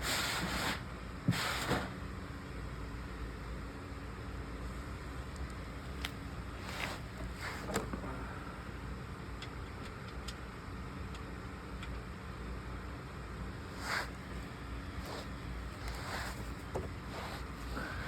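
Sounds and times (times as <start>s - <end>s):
steady low hum: 0.0s - 18.0s
short scrapes: 13.7s - 14.4s, 15.0s - 18.0s.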